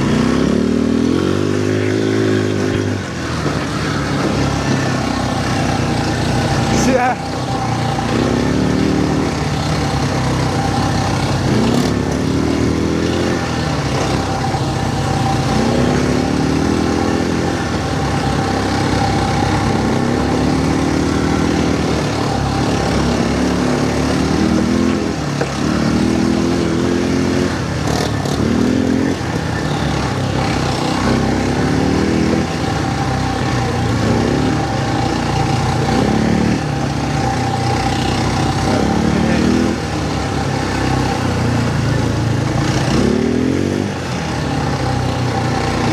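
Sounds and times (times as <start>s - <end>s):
quad bike engine revving: 0.0s - 45.9s.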